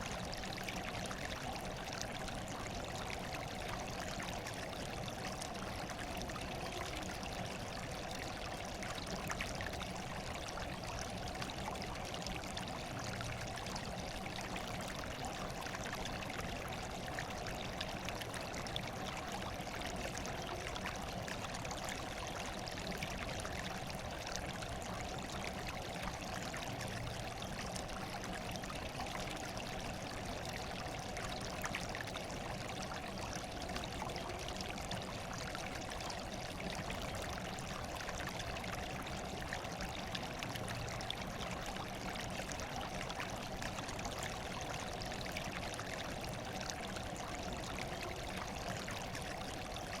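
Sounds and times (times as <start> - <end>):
water trickling and splashing: 0.0 - 50.0.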